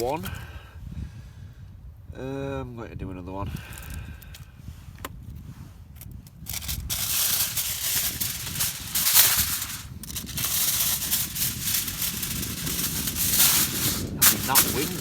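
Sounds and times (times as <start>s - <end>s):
food wrapping crinkling: 0.0s - 0.3s, 6.0s - 15.0s.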